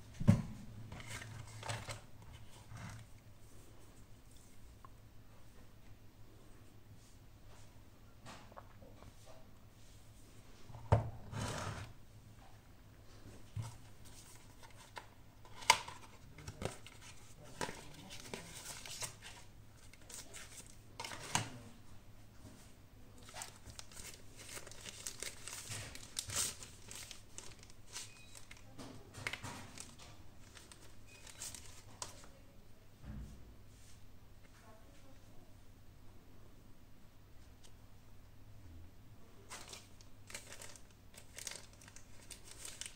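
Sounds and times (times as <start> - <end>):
packaging crinkling and tearing: 14.2 - 21.4, 23.2 - 32.3, 39.5 - 42.9.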